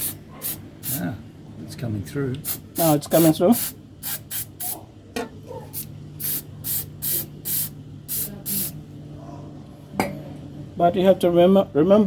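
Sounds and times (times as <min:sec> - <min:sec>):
hissing spray bursts: 0:02.4 - 0:04.8, 0:05.8 - 0:08.8.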